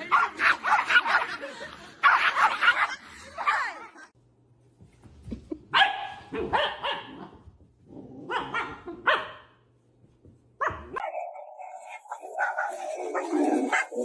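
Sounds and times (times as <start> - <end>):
dog barking: 5.8 - 7.3, 8.3 - 9.5.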